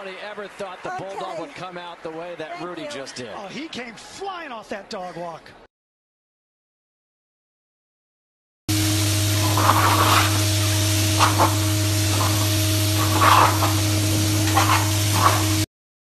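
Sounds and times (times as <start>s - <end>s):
machine hum with hiss: 8.7s - 15.7s
short noisy bursts: 8.7s - 15.7s.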